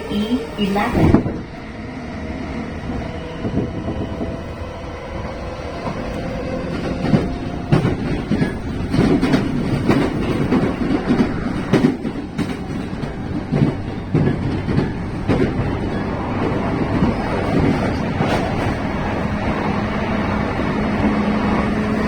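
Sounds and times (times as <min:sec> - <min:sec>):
train low rumble: 0:00.0 - 0:22.0
wheels clacking on track: 0:05.0 - 0:22.0.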